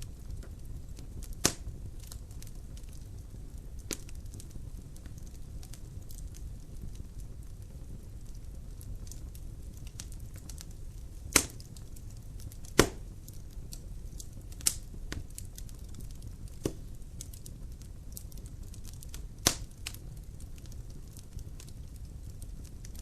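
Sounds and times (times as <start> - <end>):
faint fire crackles: 0.0 - 23.0
low rush of fire: 0.0 - 23.0
sharp loud wood pops: 11.4 - 11.6, 12.7 - 13.0.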